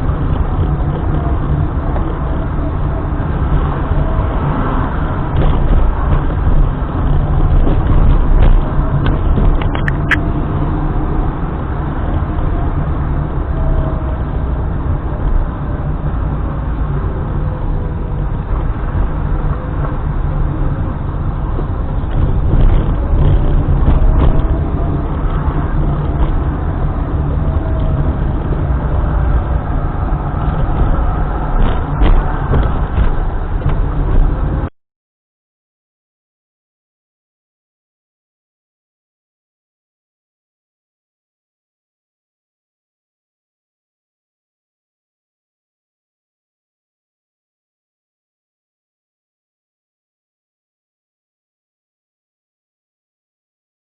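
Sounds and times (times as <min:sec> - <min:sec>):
car road rumble from inside: 0:00.0 - 0:34.7.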